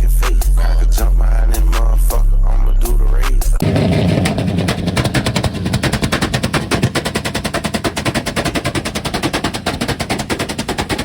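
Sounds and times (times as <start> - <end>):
car exhaust popping: 3.6 - 11.0.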